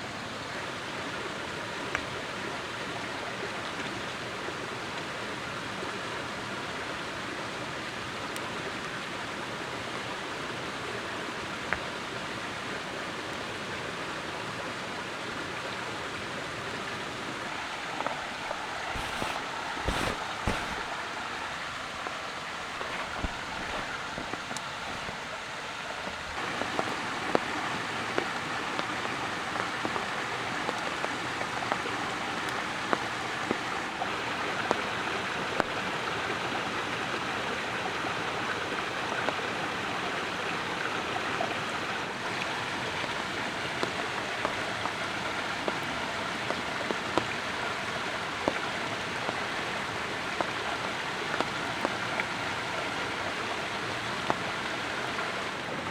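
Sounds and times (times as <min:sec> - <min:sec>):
wood fire crackling and popping: 0:17.5 - 0:25.4.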